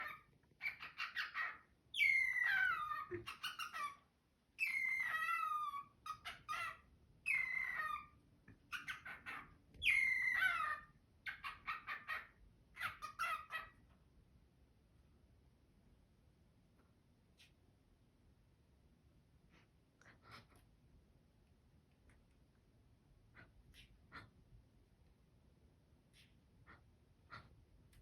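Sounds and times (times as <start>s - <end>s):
cockatiel chirping and whistling: 0.0s - 4.0s, 4.6s - 13.7s.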